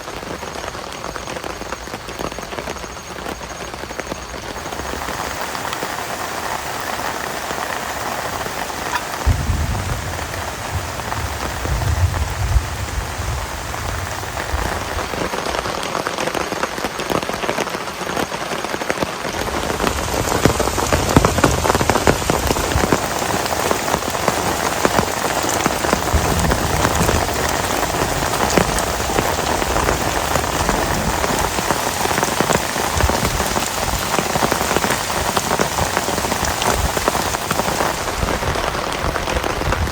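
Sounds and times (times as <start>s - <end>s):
heavy rain falling: 0.0s - 39.9s
low rumble: 9.2s - 14.7s.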